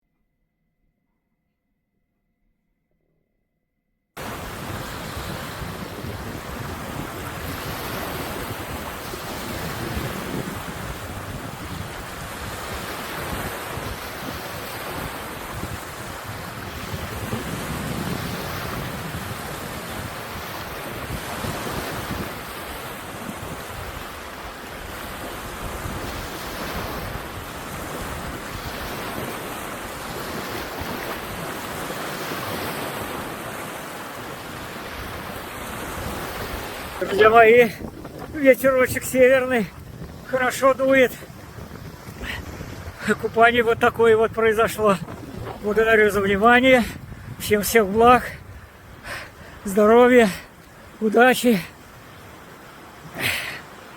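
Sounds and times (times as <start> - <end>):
wind blowing across microphone: 4.2 - 51.1
waves washing: 4.2 - 53.9.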